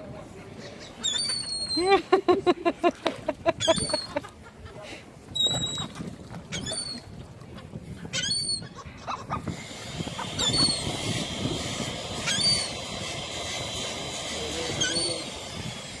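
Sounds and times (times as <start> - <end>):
seagulls calling: 0.6 - 2.0, 3.5 - 4.4, 8.1 - 11.4, 12.1 - 13.0
steady background noise: 8.9 - 16.0.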